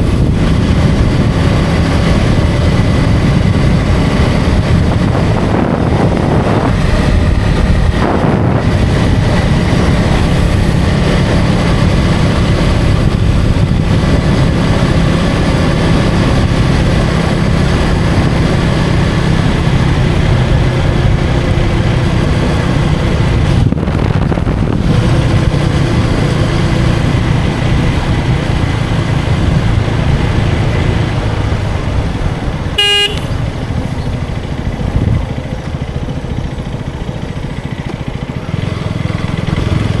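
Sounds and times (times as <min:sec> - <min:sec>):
wind noise: 0:00.0 - 0:37.0
motorcycle engine running: 0:00.0 - 0:40.0
vehicle horn toot: 0:32.8 - 0:33.5.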